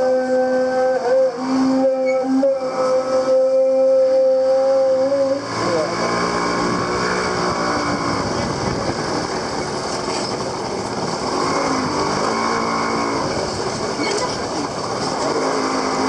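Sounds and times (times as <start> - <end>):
traffic and street bustle: 0.0 - 16.0
small motorcycle engine running: 4.8 - 16.0.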